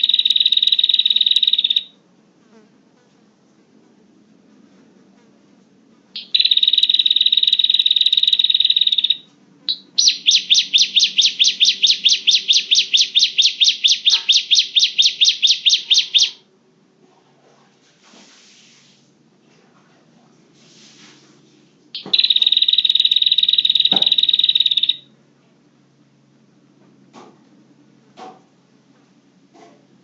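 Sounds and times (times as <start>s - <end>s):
bird sharp repeated notes: 0.0s - 1.9s, 6.2s - 16.4s, 22.0s - 25.1s
bird buzzing trill: 6.2s - 16.4s.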